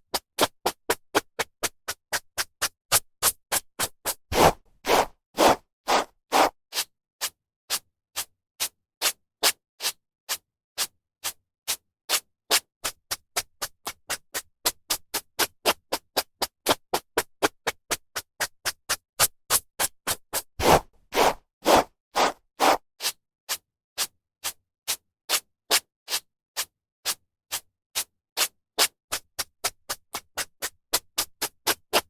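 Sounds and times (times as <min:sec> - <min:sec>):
hairbrush brushing hair: 0:04.4 - 0:06.5, 0:20.6 - 0:22.8.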